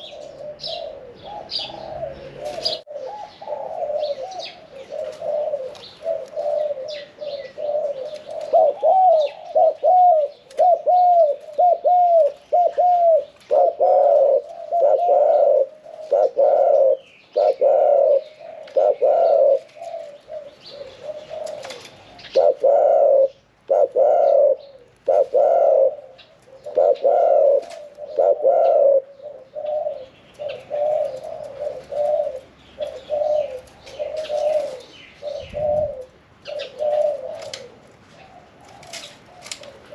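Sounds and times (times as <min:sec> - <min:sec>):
dove cooing: 0:00.0 - 0:39.9
small birds chirping: 0:00.0 - 0:39.9.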